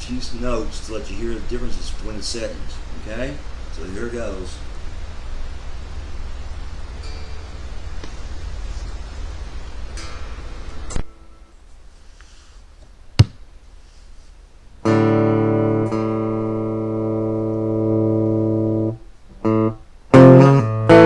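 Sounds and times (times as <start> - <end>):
electric guitar chords: 6.5 - 11.6, 14.8 - 21.0.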